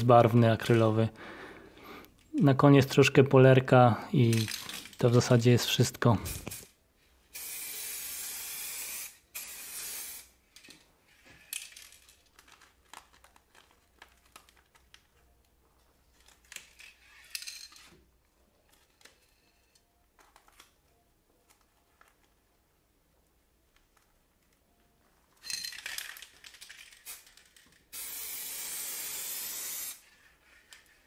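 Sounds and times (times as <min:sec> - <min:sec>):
aerosol spray can hissing: 0:07.3 - 0:10.3, 0:27.9 - 0:30.1
paper and tape rustling: 0:11.0 - 0:18.0, 0:30.0 - 0:31.0.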